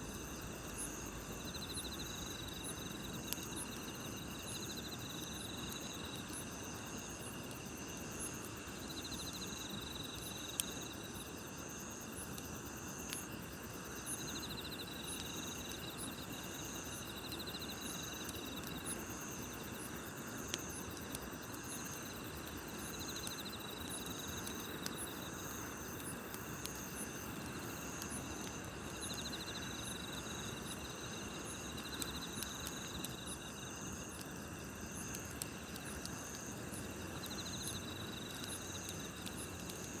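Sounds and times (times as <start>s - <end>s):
campfire hissing: 0.0s - 40.0s
insects chirping in steady pulses: 0.0s - 40.0s
insects trilling in bursts: 0.0s - 40.0s
campfire pops: 0.1s - 4.8s, 17.2s - 40.0s.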